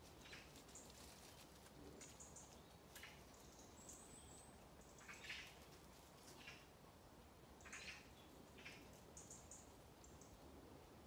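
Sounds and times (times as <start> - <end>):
high woodland bird calls: 2.2 - 5.5, 7.6 - 10.3.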